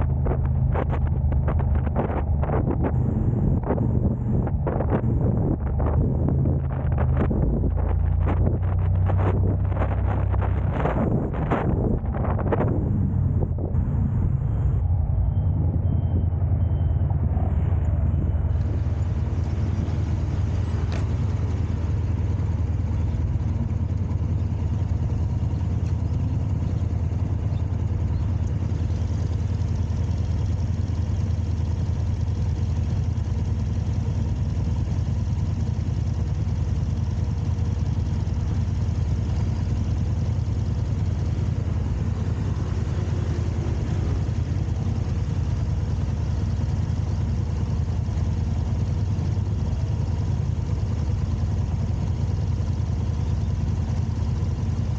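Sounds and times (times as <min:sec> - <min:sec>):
car engine and road noise: 0:00.0 - 0:54.9.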